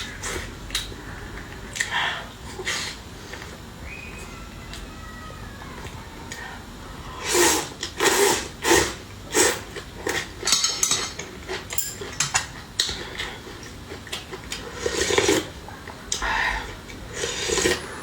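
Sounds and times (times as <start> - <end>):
kitchenware ringing and clinking: 10.4 - 12.5
kitchenware scraping clatter: 10.4 - 12.5.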